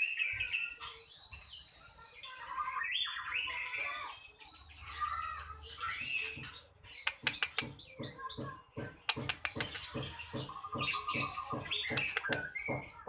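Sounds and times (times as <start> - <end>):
small songbird calling excitedly: 3.2 - 12.8.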